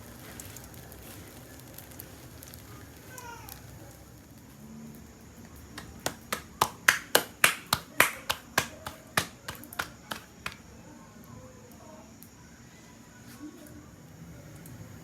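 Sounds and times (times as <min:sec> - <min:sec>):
hands slapping dough: 0:05.7 - 0:10.6.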